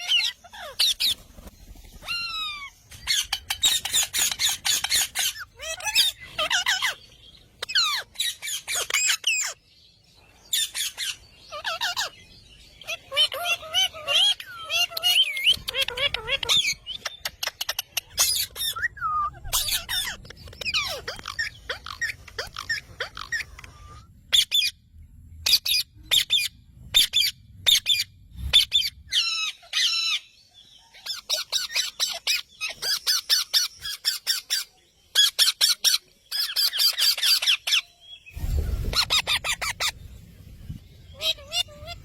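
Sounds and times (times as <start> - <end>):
parrots chirping and squawking: 0.0 - 9.8, 10.4 - 42.0
low rumble: 38.3 - 42.0.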